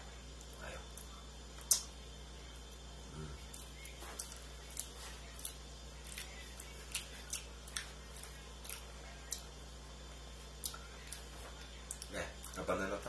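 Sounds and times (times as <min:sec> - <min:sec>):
low steady hum: 0:00.0 - 0:13.0
person chewing soft food: 0:02.6 - 0:12.7.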